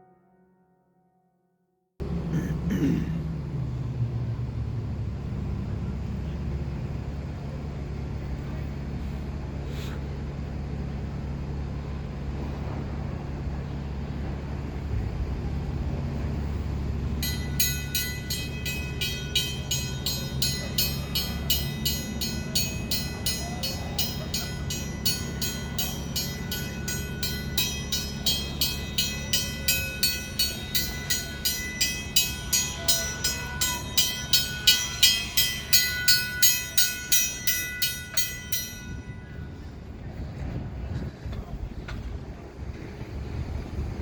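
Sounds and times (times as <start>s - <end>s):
low steady rumble: 2.0s - 44.0s
warning bell ringing rapidly: 17.2s - 39.6s.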